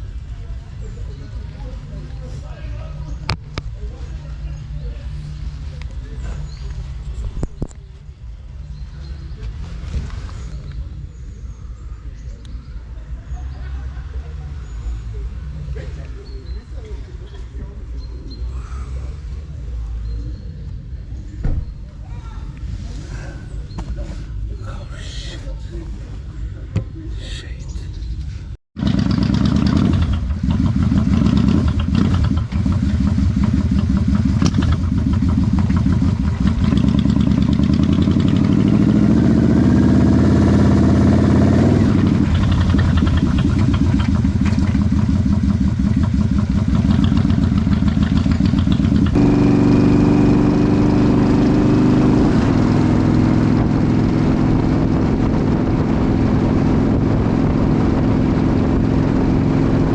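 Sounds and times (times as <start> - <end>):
motorcycle engine running: 28.8 - 59.9.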